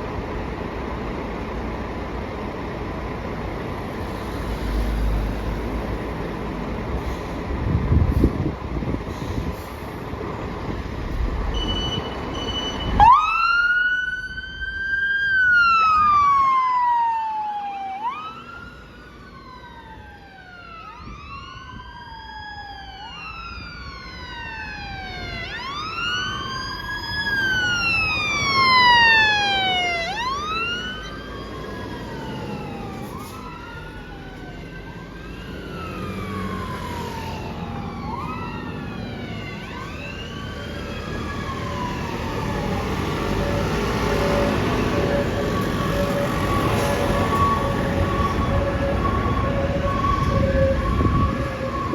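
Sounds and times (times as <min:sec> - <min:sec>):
engine rumble: 0:00.0 - 0:16.3
fire engine sirens wailing: 0:02.2 - 0:51.9.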